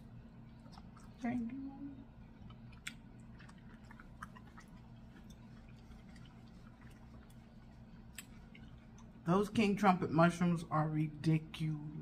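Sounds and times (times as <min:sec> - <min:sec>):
person chewing food: 0:00.0 - 0:01.4, 0:02.1 - 0:09.3.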